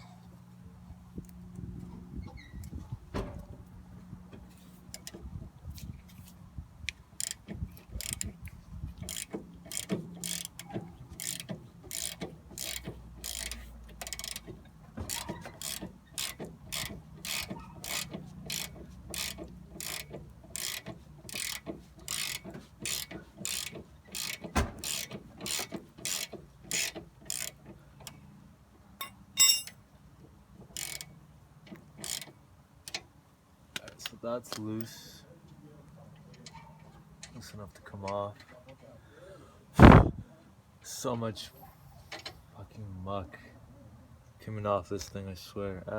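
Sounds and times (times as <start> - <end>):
ratchet wrench clicking: 7.2 - 8.3, 9.0 - 14.5, 15.1 - 27.6, 30.8 - 31.1, 32.0 - 32.3
ringing metal clink: 29.0 - 29.8
low thud: 39.8 - 40.2.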